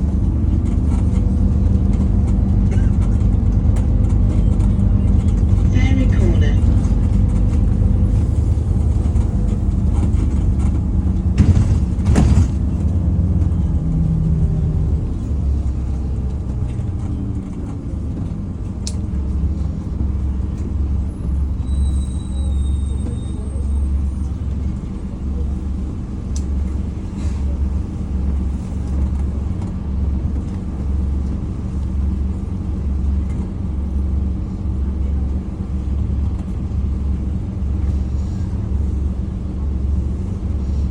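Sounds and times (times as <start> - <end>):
bus diesel engine rumble: 0.0 - 40.9
thump: 11.4 - 12.9.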